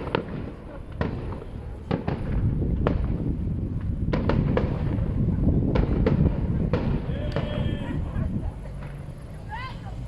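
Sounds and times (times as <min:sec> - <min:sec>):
fireworks bursting with sharp bangs: 0:00.0 - 0:09.3.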